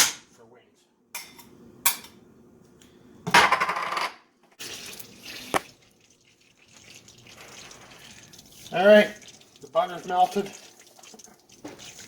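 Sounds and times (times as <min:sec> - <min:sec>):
metal pans rattling: 0:03.3 - 0:04.2.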